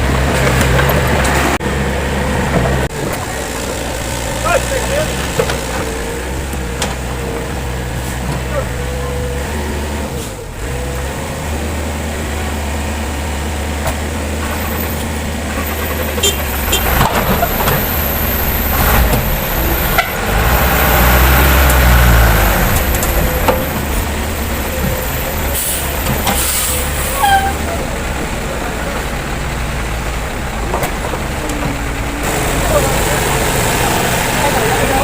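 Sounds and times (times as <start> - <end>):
heavy diesel machinery drone: 0.0 - 35.0.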